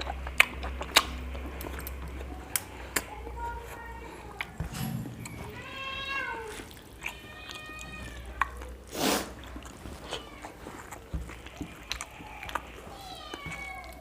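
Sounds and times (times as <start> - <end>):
cat meowing: 5.2 - 8.7, 10.0 - 10.6, 11.7 - 14.0.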